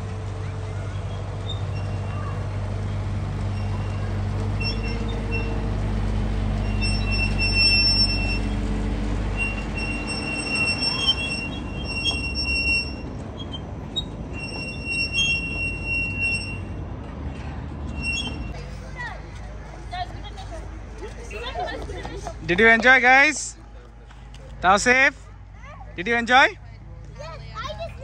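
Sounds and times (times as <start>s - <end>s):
ride train running hum: 0.0s - 28.0s
high-pitched wheel squeals: 0.4s - 18.6s.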